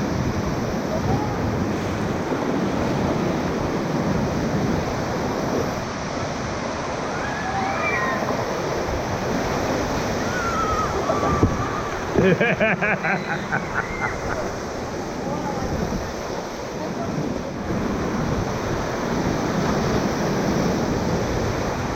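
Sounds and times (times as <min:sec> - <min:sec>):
river whitewater rushing: 0:00.0 - 0:21.9
wind on microphone: 0:00.0 - 0:21.9
faint voices: 0:13.5 - 0:17.9.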